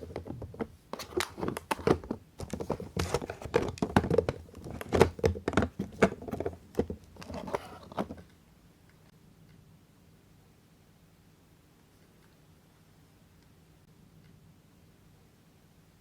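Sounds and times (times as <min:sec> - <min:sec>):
dry soap crackling: 0:00.0 - 0:08.2.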